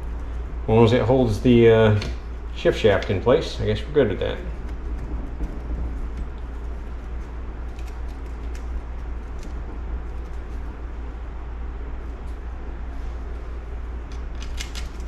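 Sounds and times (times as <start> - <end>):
steady low hum: 0.0 - 15.0
small metal parts clicking: 14.1 - 15.0.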